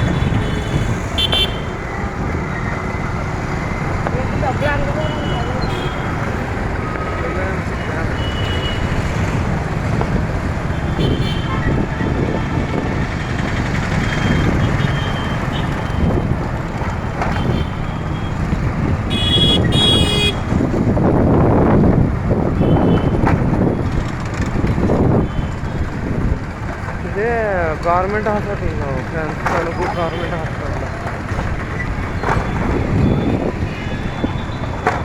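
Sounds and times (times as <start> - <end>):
vehicle horns honking: 0.0 - 1.9, 4.6 - 6.4, 7.8 - 9.3, 10.7 - 11.8, 14.0 - 16.1, 17.3 - 18.3, 19.1 - 20.5, 22.6 - 23.2, 32.2 - 35.0
road traffic rumble: 0.0 - 35.0.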